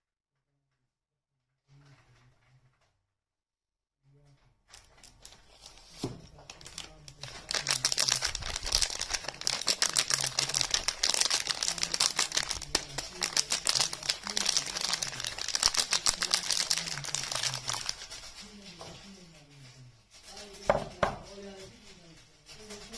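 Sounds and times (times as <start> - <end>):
packaging crinkling: 4.7 - 18.8.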